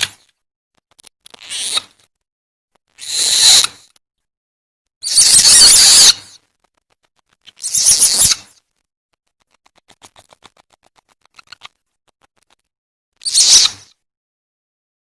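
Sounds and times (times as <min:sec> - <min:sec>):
harsh hissing screech calls: 0:03.0 - 0:03.8, 0:05.0 - 0:06.3, 0:07.6 - 0:08.4, 0:13.2 - 0:13.9.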